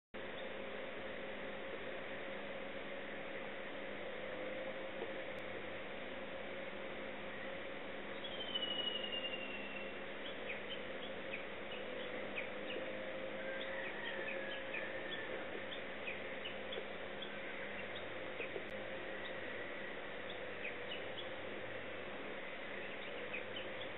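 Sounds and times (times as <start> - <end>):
steady low hum: 0.2 - 23.9
small birds chirping: 7.3 - 23.9
falling bird whistle: 8.2 - 10.0.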